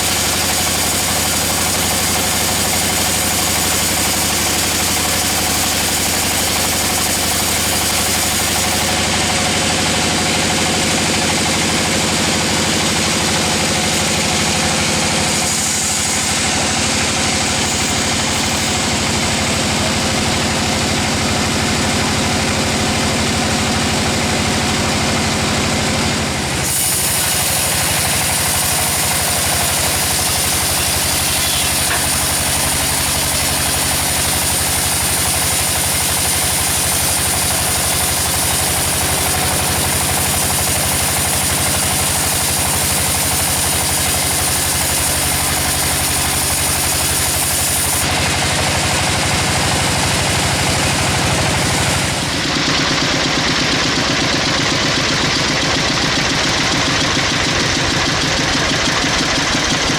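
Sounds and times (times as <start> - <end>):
blade cutting log hiss: 0.0 - 9.0, 12.7 - 20.2, 26.4 - 48.3
sawmill saw running: 0.0 - 59.9.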